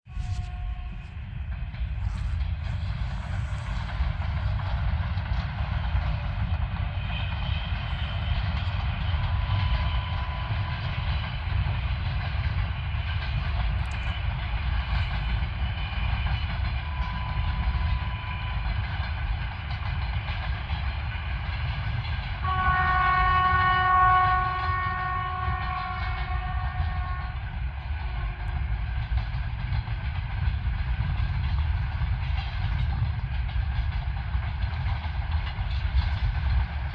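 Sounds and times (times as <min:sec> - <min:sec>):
freight train rumbling: 0:00.0 - 0:36.9
locomotive horn chord: 0:00.1 - 0:05.9, 0:22.4 - 0:27.4.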